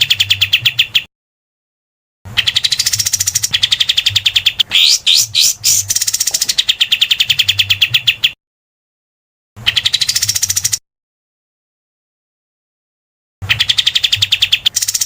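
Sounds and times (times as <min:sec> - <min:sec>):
songbird harsh chattering call: 0:04.6 - 0:06.5.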